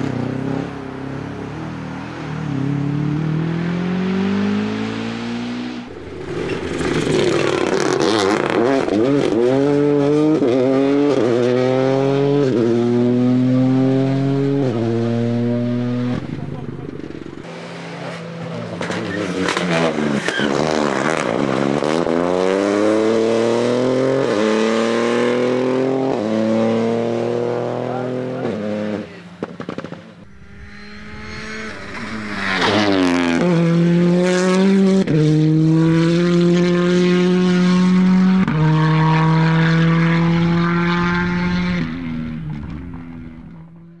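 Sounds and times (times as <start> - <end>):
rally car accelerating: 0.0 - 44.0
car passing by: 1.8 - 21.6, 30.2 - 44.0.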